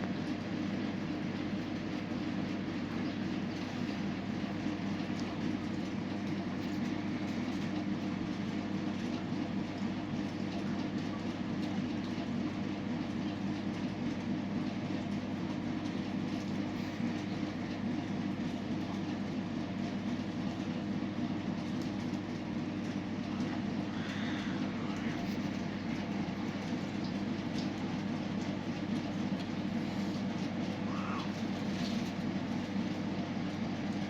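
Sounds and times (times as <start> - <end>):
constant hum: 0.0 - 34.0.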